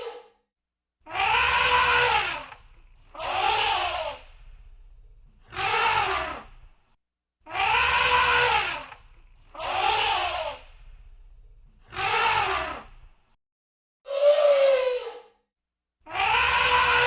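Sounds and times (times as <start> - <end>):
elephant trumpeting: 1.1 - 4.3, 5.5 - 6.5, 7.5 - 10.7, 11.9 - 12.9, 16.1 - 17.0.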